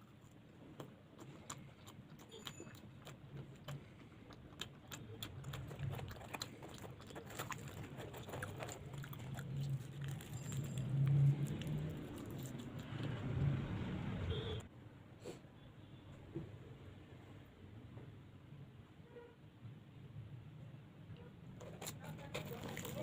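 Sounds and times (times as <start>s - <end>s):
person chewing and biting: 0.0s - 13.3s.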